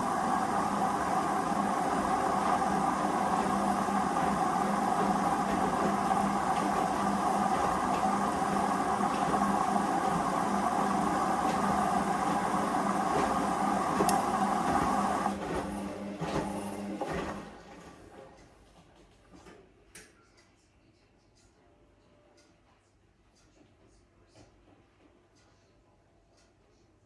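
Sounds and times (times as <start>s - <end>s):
washing machine humming: 0.0s - 18.6s.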